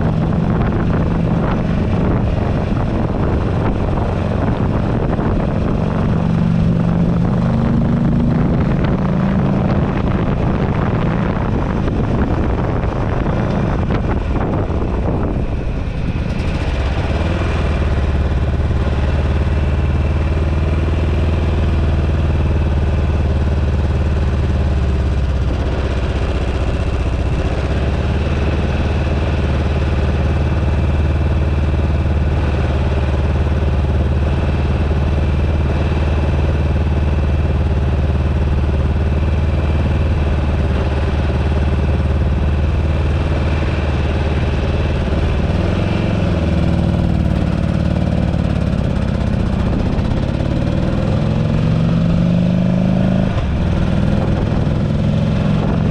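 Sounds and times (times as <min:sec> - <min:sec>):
wind buffeting microphone: 0:00.0 - 0:19.7, 0:32.2 - 0:55.9
motorcycle engine running: 0:00.0 - 0:55.9.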